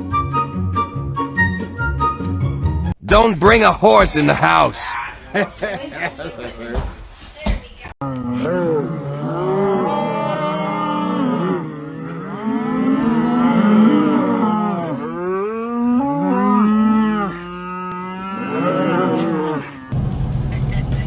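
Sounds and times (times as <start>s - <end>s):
cattle mooing: 8.1s - 20.0s.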